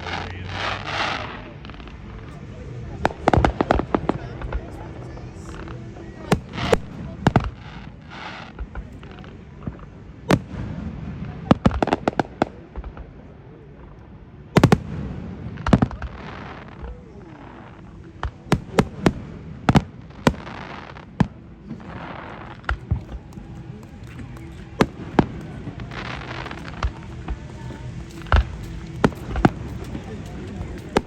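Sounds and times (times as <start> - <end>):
firework crackling hiss: 0.0 - 9.4, 14.6 - 31.0.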